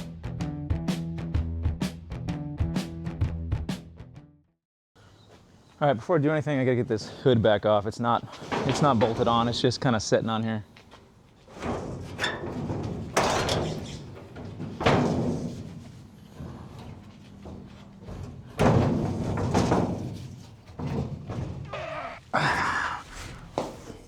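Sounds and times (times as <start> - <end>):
metal hood scraping clunks: 8.3 - 9.9, 11.4 - 22.3
sheet metal thumps: 11.5 - 21.9.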